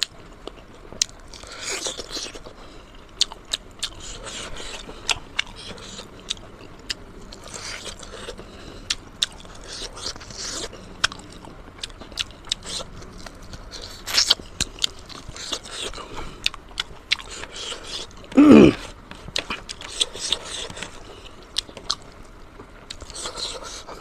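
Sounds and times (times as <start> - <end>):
close-miked chewing: 0.0 - 24.0
short loud vocal sound: 18.4 - 18.9.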